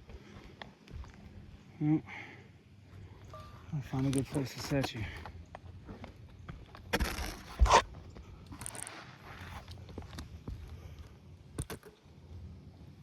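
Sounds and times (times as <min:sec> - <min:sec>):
camera scraping on roof shingles: 0:06.6 - 0:10.4.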